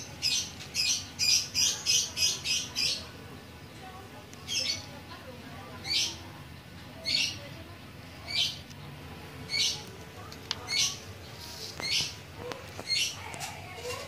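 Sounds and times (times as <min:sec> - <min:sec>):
bird chirping: 0:12.8 - 0:13.2.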